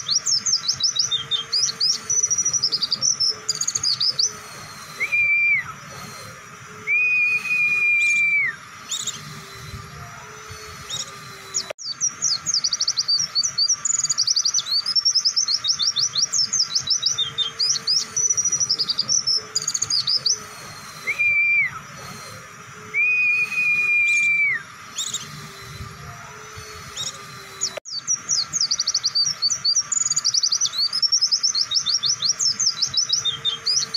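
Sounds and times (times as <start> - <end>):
bird chirps and trills: 0.0 - 33.9
long level bird whistles: 0.0 - 33.9.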